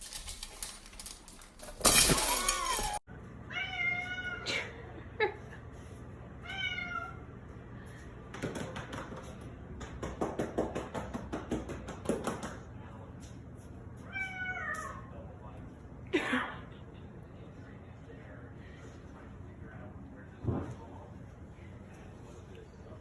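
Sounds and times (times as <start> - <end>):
cat falling cry: 1.8 - 3.0
cat meowing: 3.5 - 4.5, 6.4 - 7.2.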